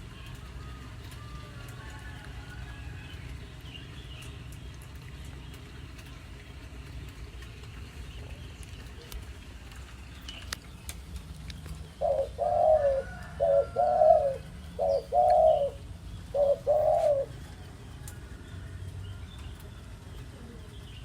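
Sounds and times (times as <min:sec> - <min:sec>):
dove cooing: 0:11.7 - 0:17.8.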